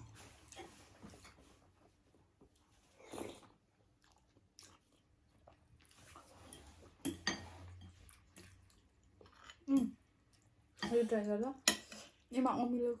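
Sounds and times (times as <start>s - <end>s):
chewing and biting: 3.0s - 6.4s.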